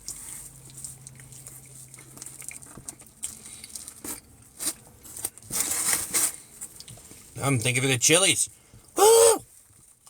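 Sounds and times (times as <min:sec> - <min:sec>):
man chewing pizza: 0:00.0 - 0:04.9.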